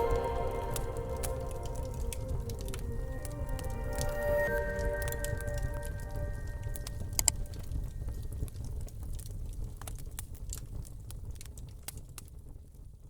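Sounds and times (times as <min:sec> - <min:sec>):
low rumble: 0:00.0 - 0:08.3
wood fire crackling: 0:00.0 - 0:13.0.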